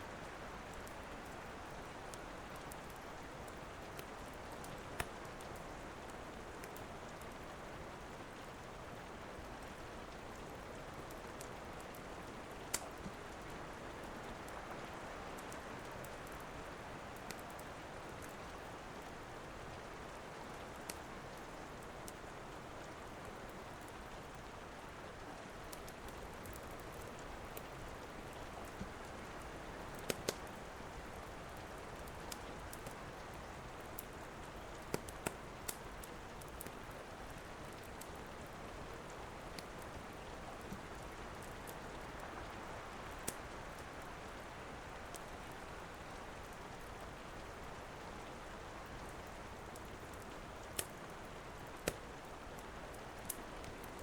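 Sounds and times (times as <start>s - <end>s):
steady rain falling: 0.0s - 54.0s
wood fire crackling and popping: 2.1s - 5.7s, 11.0s - 13.4s, 20.6s - 21.1s, 25.6s - 29.1s, 29.8s - 30.6s, 31.2s - 38.3s, 43.1s - 44.0s, 49.2s - 54.0s.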